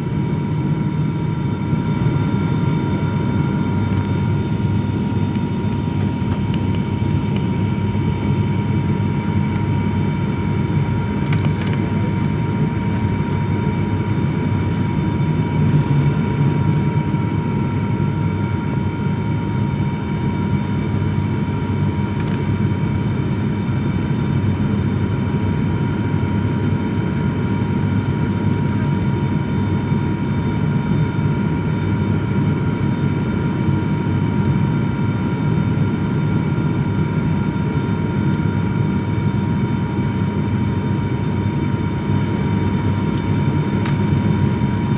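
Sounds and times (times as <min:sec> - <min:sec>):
thin steady whine: 0:00.0 - 0:25.4, 0:37.4 - 0:44.9
airliner cabin rumble: 0:02.0 - 0:17.6, 0:41.8 - 0:44.9.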